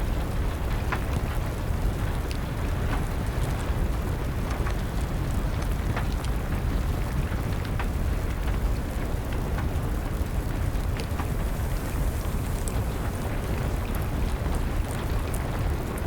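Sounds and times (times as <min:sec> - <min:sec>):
wood fire crackling: 0:00.1 - 0:16.0
rain hiss: 0:10.6 - 0:16.0.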